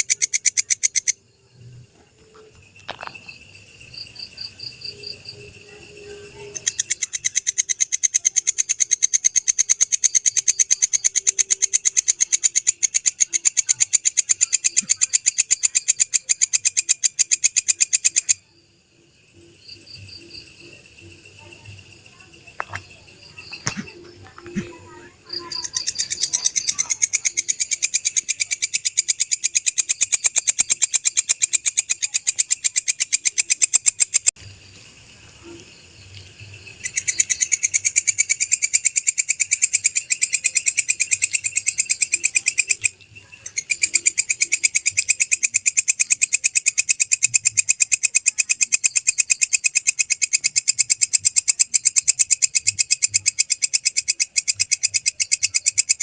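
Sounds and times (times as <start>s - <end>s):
katydid pulsing chirr: 0.0s - 56.0s.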